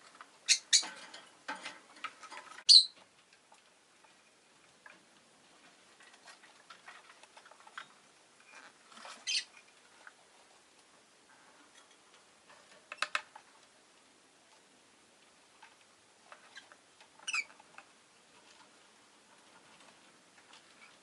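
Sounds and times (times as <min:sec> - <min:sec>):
lovebird chirping: 0:00.4 - 0:00.9, 0:02.7 - 0:03.0, 0:09.2 - 0:09.5, 0:17.2 - 0:17.5.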